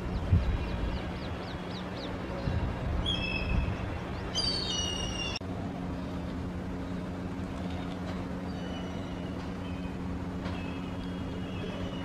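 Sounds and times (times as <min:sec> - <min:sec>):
low hum: 0:00.0 - 0:12.0
small birds whistled calls: 0:00.1 - 0:05.4, 0:08.5 - 0:12.0.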